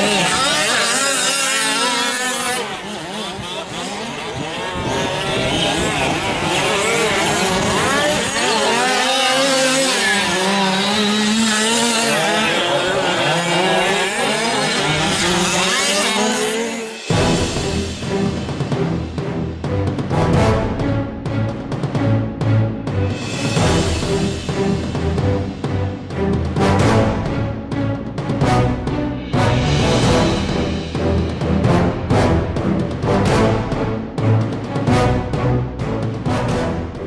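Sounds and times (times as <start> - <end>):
small two-stroke engines revving: 0.0 - 18.4.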